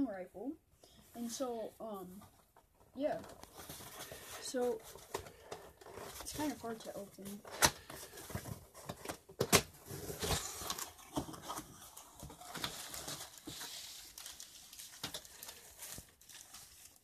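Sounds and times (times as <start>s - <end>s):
box scraping and rustling: 9.8s - 14.1s.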